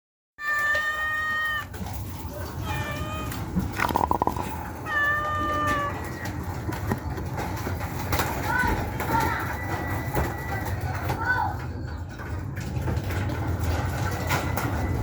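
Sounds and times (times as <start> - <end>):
cat meowing: 0.4 - 1.8, 2.4 - 4.1, 4.8 - 6.3.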